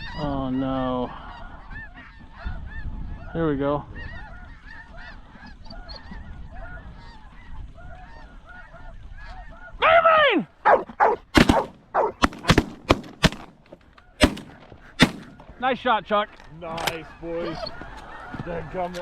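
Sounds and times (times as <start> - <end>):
geese honking: 10.7 - 12.6
shotgun blasts: 10.7 - 13.6, 14.2 - 15.5.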